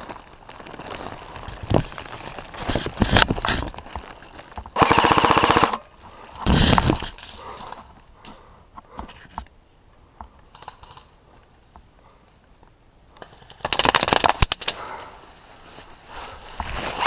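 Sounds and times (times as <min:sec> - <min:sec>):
knocks and rustling of movement: 0:00.0 - 0:05.4, 0:06.0 - 0:17.0
airsoft gun firing bursts: 0:04.8 - 0:05.8.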